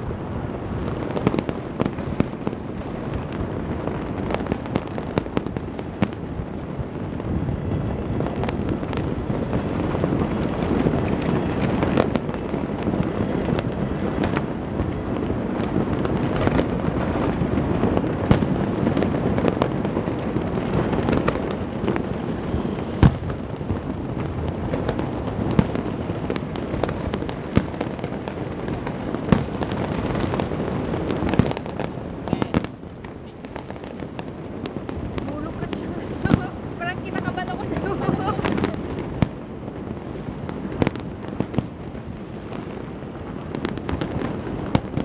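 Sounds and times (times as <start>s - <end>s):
fireworks crackling rumble: 0.0s - 45.0s
firecracker bangs: 10.2s - 32.9s.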